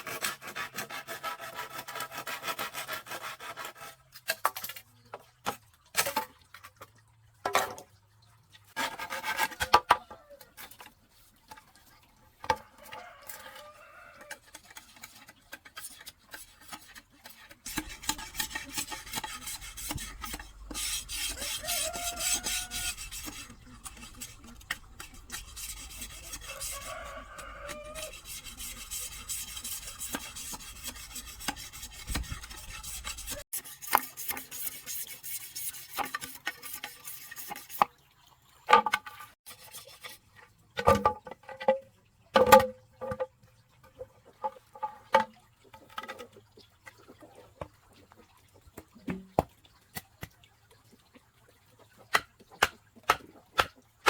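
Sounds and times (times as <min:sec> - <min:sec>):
hand tool rasping wood: 0:00.0 - 0:04.0, 0:17.7 - 0:37.8.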